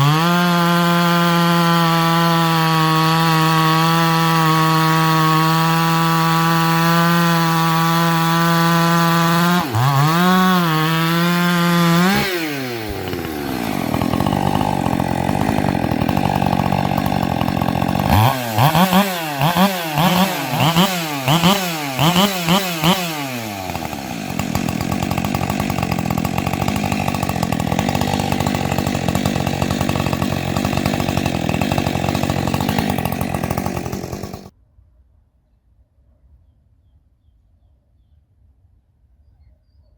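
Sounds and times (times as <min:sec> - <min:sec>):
chainsaw engine revving: 0:00.0 - 0:34.5.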